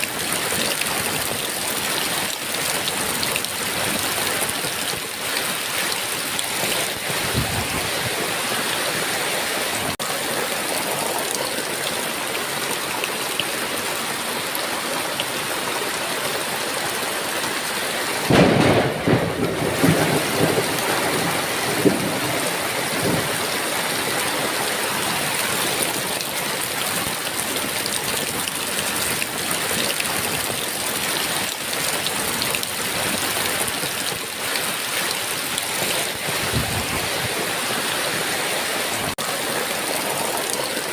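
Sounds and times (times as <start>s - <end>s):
heavy rain: 0.0s - 40.9s
thunder rumbling: 18.3s - 23.6s.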